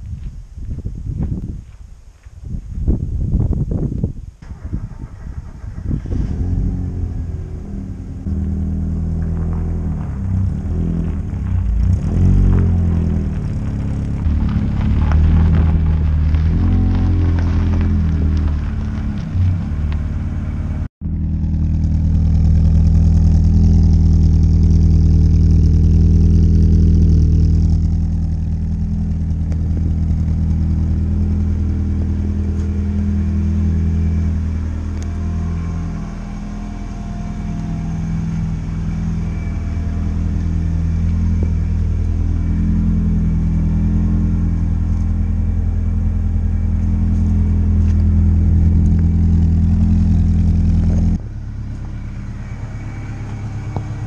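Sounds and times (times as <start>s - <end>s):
car engine idling: 4.4s - 54.0s.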